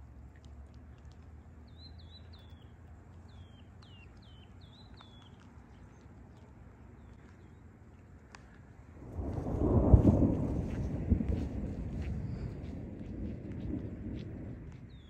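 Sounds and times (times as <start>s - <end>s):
songbird chirping: 0.0s - 9.6s, 13.5s - 15.0s
low outdoor rumble: 0.0s - 15.0s.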